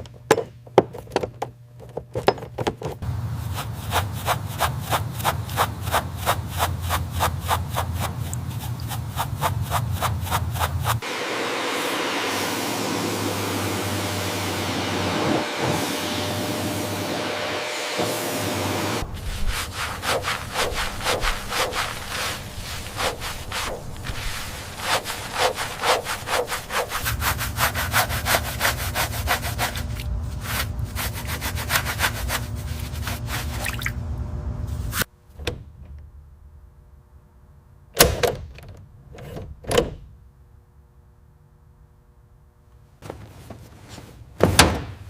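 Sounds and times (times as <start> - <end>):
hand sanding strokes: 3.0 - 33.7.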